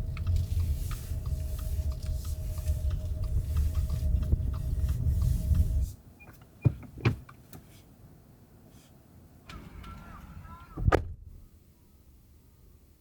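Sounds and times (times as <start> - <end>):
faint whine: 0.0 - 6.4
car mechanism rumbling: 0.0 - 7.7, 9.5 - 11.5.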